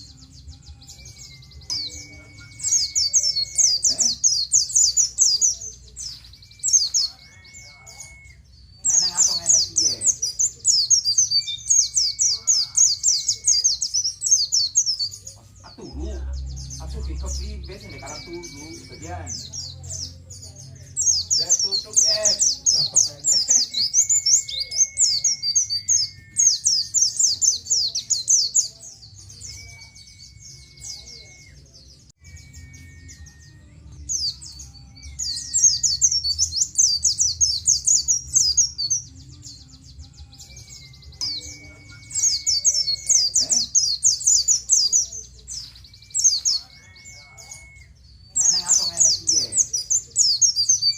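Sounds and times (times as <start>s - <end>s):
bird singing high chirps: 0.0s - 50.9s
thin whistle-like tone: 1.7s - 3.7s, 6.5s - 8.5s, 40.7s - 43.2s.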